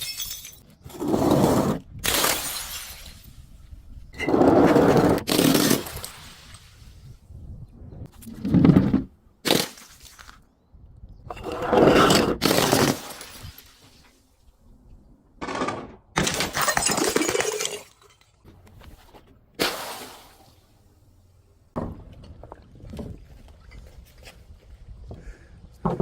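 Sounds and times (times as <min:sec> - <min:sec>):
glass bottles shattering: 0:00.0 - 0:00.8, 0:02.0 - 0:03.4, 0:11.3 - 0:13.9, 0:15.5 - 0:18.4.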